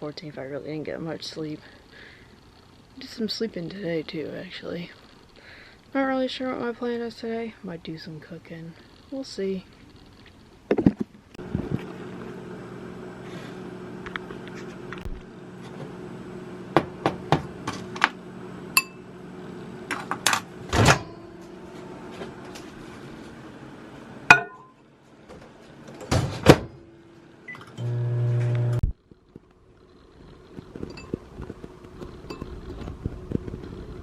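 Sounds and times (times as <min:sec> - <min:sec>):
microwave oven humming: 0:11.4 - 0:28.9, 0:30.4 - 0:34.0
dishes clicking and knocking: 0:24.3 - 0:24.7.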